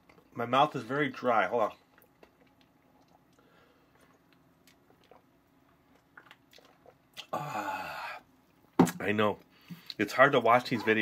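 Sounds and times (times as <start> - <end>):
person chewing crunchy food: 1.7 - 7.3.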